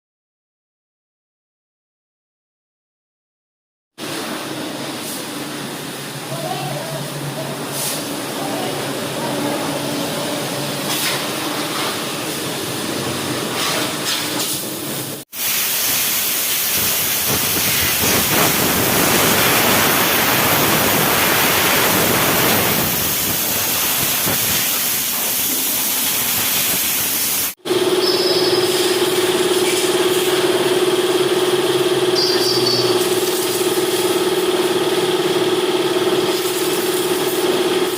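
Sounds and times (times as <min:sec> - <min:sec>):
pressure washer water spray hissing: 0:04.1 - 0:35.0, 0:36.1 - 0:37.9
machine hum with held tone: 0:27.6 - 0:37.9.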